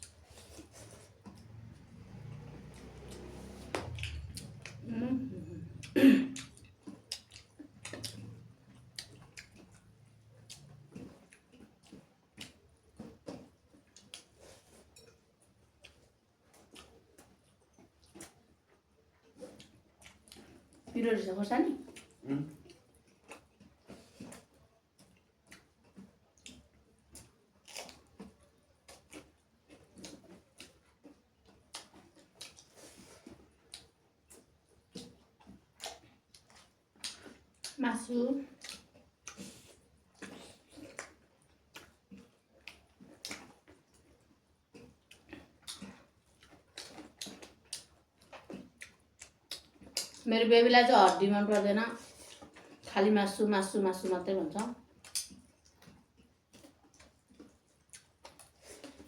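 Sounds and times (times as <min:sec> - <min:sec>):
chewing and lip smacking: 0:00.0 - 0:04.9, 0:05.7 - 0:21.0, 0:21.8 - 0:37.8, 0:38.5 - 0:50.3, 0:51.1 - 0:52.9, 0:54.6 - 0:59.0.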